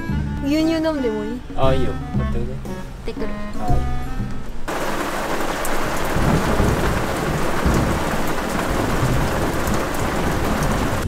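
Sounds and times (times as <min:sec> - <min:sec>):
heavy rain on vehicle roof: 0:04.7 - 0:11.0
thunder rumbling: 0:04.7 - 0:11.0.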